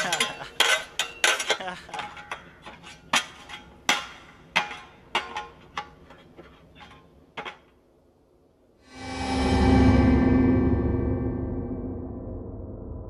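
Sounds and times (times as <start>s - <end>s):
shovels clanging together: 0.0s - 7.6s.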